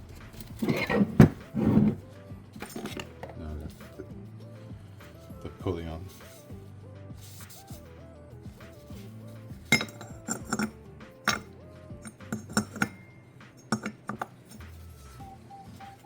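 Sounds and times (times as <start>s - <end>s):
metal tools clinking: 2.6s - 3.3s, 9.7s - 14.8s.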